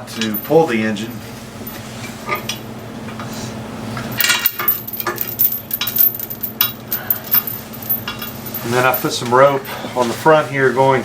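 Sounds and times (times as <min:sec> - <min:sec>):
steel chain clinking and rattling: 0:04.1 - 0:09.8.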